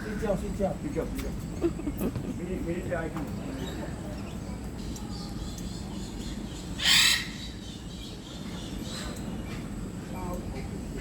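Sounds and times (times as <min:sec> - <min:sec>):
low background hum: 0:00.0 - 0:11.0
harsh bird squawk: 0:06.8 - 0:07.6.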